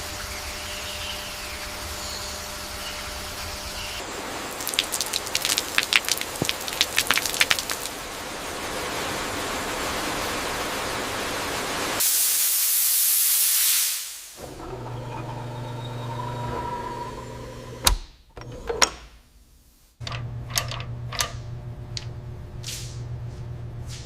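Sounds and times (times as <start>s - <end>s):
spraying hiss: 12.0s - 14.4s.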